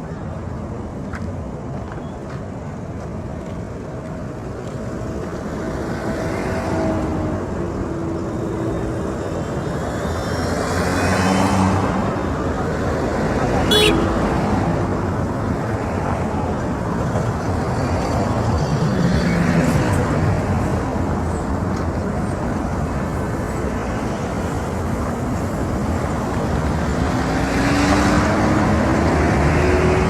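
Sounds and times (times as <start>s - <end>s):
road traffic rumble: 0.0s - 30.0s
vehicle engine accelerating: 25.3s - 30.0s.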